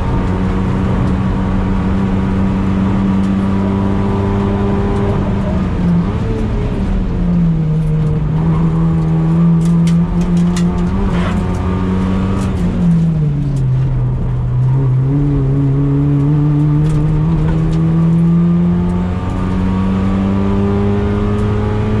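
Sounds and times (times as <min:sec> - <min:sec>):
car engine driven hard: 0:00.0 - 0:22.0
sharp clicks and rattles: 0:09.0 - 0:11.7.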